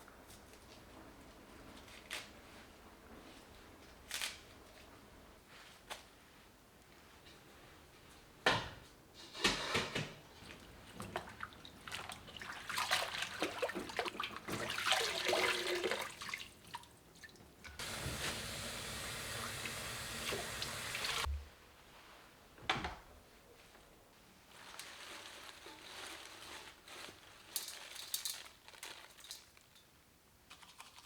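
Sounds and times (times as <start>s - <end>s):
water running from a tap: 17.8s - 21.3s
clatter of things being handled: 24.6s - 29.9s.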